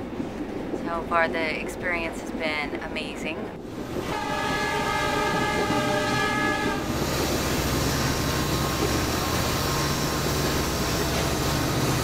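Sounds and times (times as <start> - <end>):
moving train rumble: 0.0 - 12.0
train horn chord: 4.0 - 7.0.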